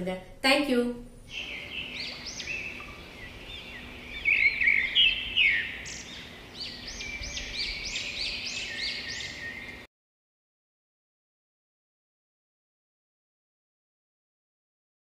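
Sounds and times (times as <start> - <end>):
birds chirping: 1.3 - 9.9.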